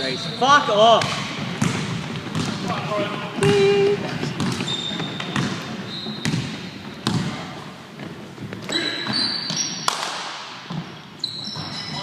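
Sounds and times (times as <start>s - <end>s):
basketball bouncing on court: 0.8s - 8.1s
short high squeaks: 8.7s - 9.9s, 11.2s - 12.0s.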